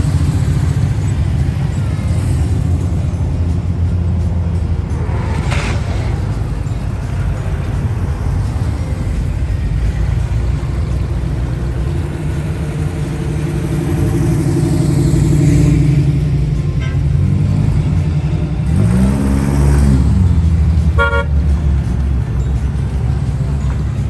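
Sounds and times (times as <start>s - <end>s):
cars passing by: 0.0s - 24.0s
car horn toot: 20.9s - 21.5s.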